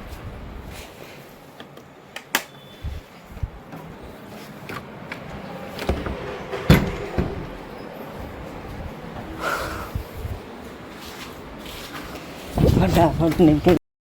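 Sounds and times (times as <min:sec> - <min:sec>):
sharp knocks and thumps: 0:05.8 - 0:07.8.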